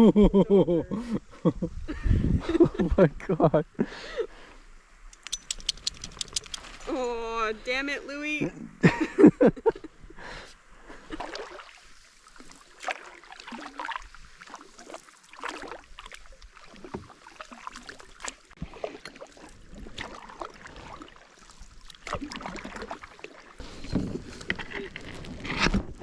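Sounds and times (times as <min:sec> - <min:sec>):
faint water hiss: 0:00.9 - 0:24.8
paddle splashes: 0:10.8 - 0:26.0.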